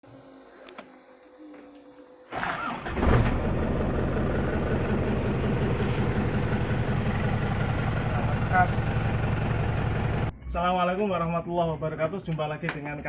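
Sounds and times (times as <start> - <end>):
starter motor cranking: 2.3 - 10.3
diesel engine idling: 2.4 - 10.3.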